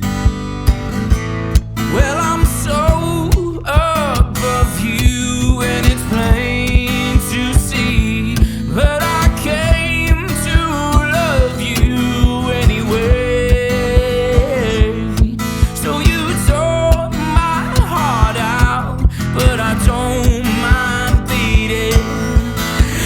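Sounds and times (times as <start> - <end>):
acoustic guitar: 0.0 - 23.0.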